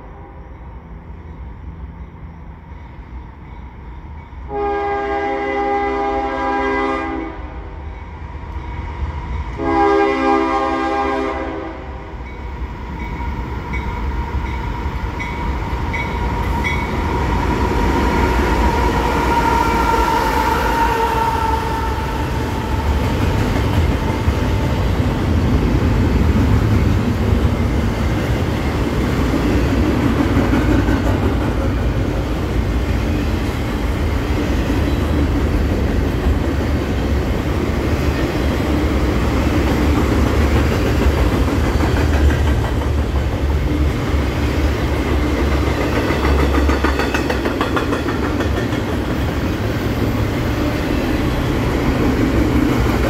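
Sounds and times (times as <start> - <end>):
freight train rumble: 0.0 - 53.0
locomotive horn blasts: 4.5 - 7.6, 9.6 - 12.1, 19.1 - 22.5.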